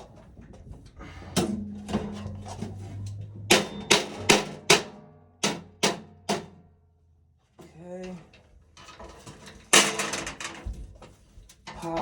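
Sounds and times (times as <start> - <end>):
sharp metal knocks: 1.4 - 6.6.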